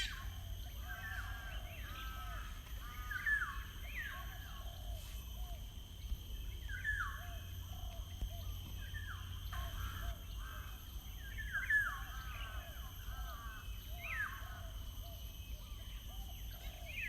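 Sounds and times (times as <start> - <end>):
birds calling: 0.0 - 4.9.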